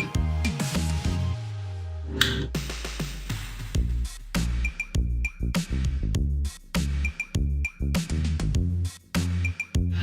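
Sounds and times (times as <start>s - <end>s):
electronic music: 0.0s - 6.0s
deep bass line: 0.0s - 10.0s
drum machine beat: 2.2s - 10.0s.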